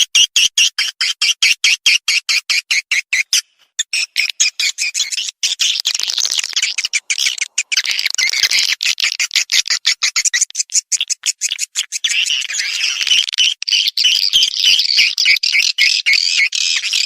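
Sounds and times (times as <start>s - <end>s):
swiftlet flock chirping: 3.1s - 17.0s.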